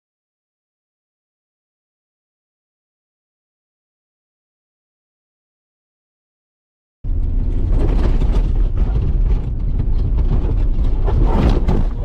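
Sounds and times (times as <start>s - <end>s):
road and wind noise: 7.0s - 12.0s
vehicle rumbling: 7.0s - 12.0s.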